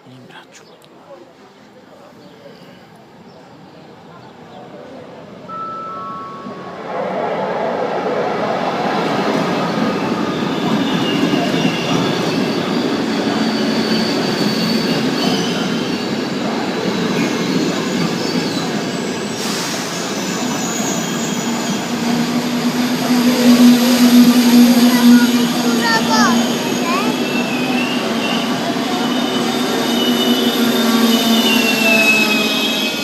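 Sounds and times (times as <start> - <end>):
train wheels rushing on rails: 6.6 - 33.0.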